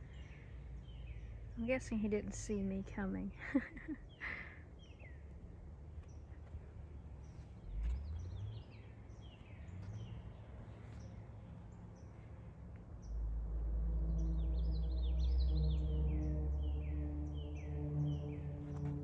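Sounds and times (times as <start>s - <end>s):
birds chirping: 0.0s - 13.3s, 14.0s - 19.0s
low rumble: 12.7s - 19.0s.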